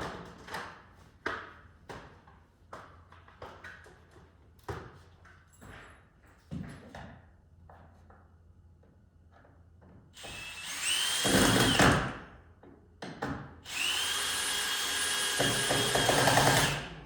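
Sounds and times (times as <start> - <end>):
power drill driving screws into wood: 10.2 - 12.3, 13.6 - 17.0.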